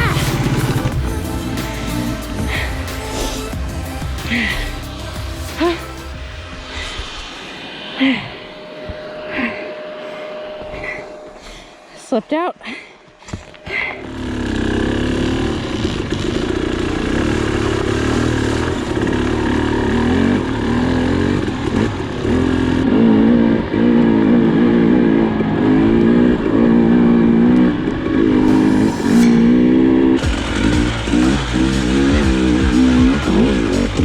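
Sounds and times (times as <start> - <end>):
dirt bike engine revving: 0.0 - 6.2, 14.0 - 34.0.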